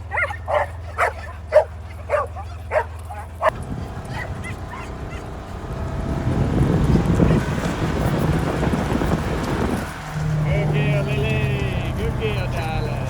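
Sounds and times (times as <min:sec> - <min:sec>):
dog yelping and whining: 0:00.0 - 0:05.3
low rumbling noise: 0:00.0 - 0:13.0.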